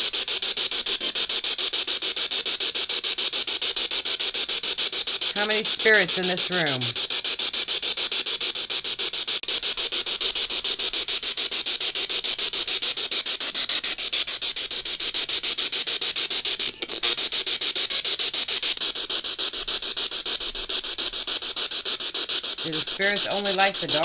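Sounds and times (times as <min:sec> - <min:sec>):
stuttering radio static: 0:05.2 - 0:07.0, 0:09.6 - 0:24.0.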